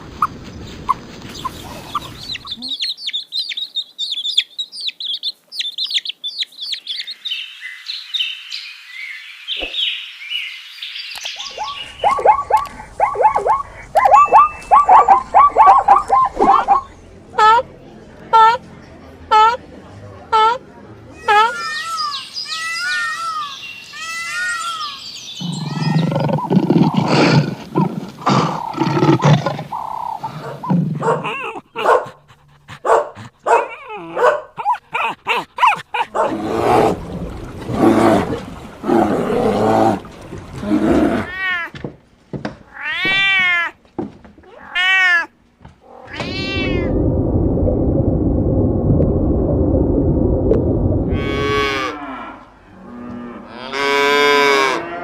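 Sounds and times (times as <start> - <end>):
animal calls: 11.4 - 17.6, 21.2 - 32.0
cat meowing: 42.7 - 43.7, 44.4 - 45.3, 46.0 - 47.0.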